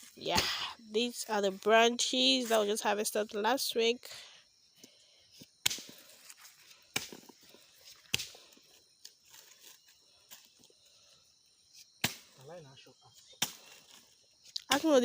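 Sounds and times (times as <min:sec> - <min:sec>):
axe striking fruit bunches: 0:05.6 - 0:06.0, 0:06.9 - 0:07.2, 0:08.1 - 0:08.4, 0:12.0 - 0:12.4, 0:13.3 - 0:13.8.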